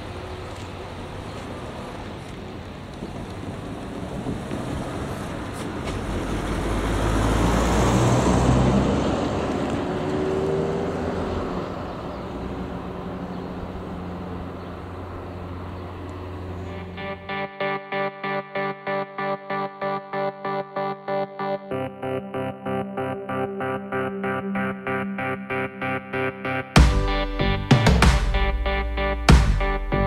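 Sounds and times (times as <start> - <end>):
vehicle passing by: 0.0 - 26.6
low engine drone: 11.3 - 30.0
music: 16.7 - 30.0.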